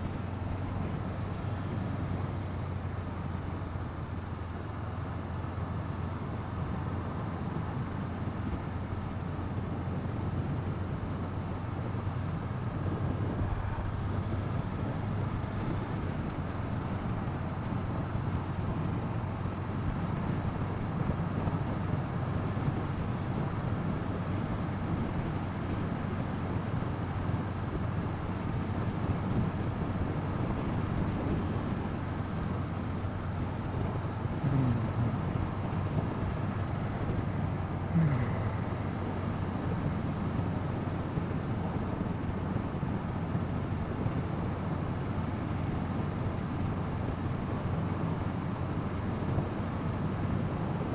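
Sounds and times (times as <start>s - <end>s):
wind rushing over microphone: 11.8s - 16.2s
motorcycle engine running: 28.0s - 44.1s.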